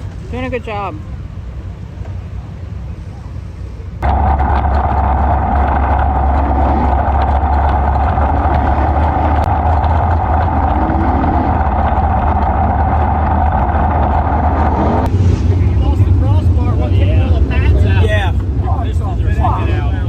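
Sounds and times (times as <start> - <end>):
race car engine running: 4.0 - 20.0.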